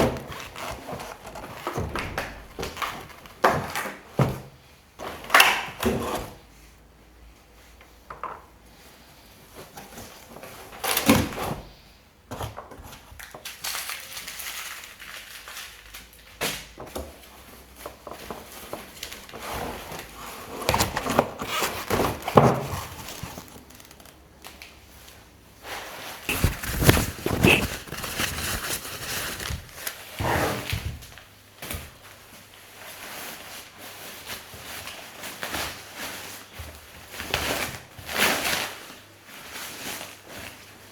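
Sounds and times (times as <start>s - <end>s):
packaging rustling: 18.1s - 24.7s, 26.3s - 30.2s.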